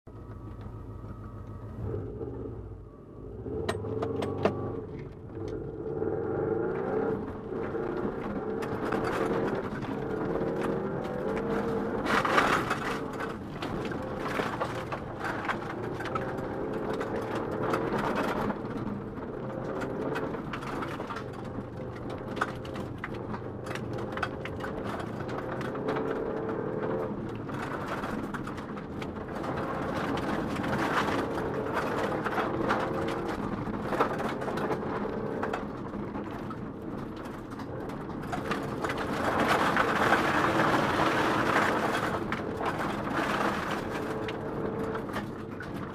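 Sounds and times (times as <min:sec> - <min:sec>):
rally car engine revving: 0:00.1 - 0:45.9
car clicks and rattles: 0:03.4 - 0:45.9.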